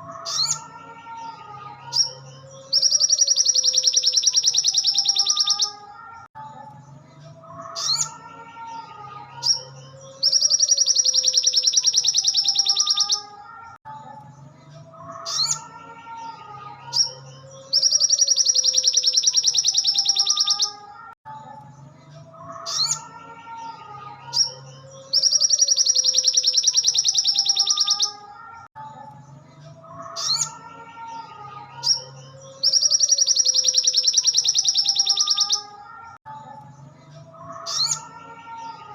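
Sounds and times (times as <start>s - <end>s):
bird rapid high trill: 2.7s - 5.8s, 10.2s - 13.3s, 17.7s - 20.8s, 25.1s - 28.3s, 32.6s - 35.7s.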